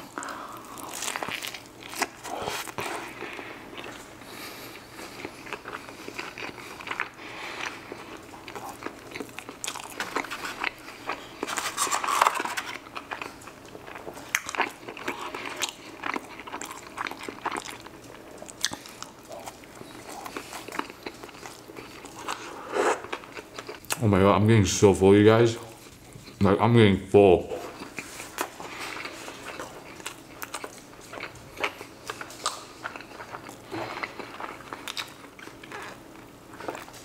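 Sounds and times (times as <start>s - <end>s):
wet chewing and mouth clicks: 12.6s - 24.0s, 27.7s - 37.0s.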